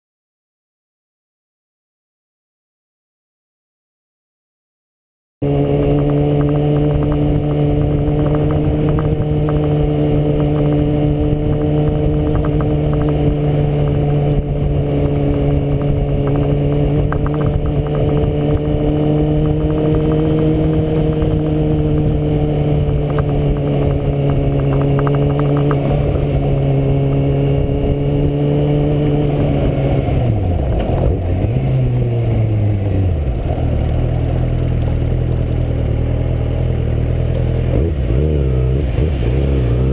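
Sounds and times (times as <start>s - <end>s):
motorcycle engine running: 5.4s - 39.9s.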